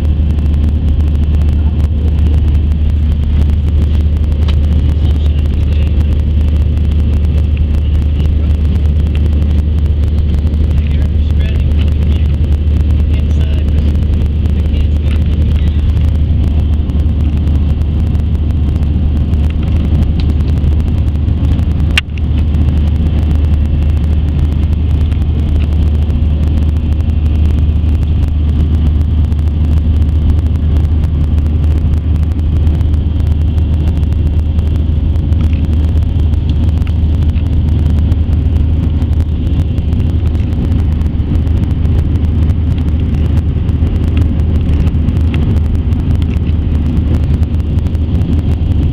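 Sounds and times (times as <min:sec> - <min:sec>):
airliner cabin engine drone: 0:00.0 - 0:48.9
rushing airflow: 0:00.0 - 0:48.9.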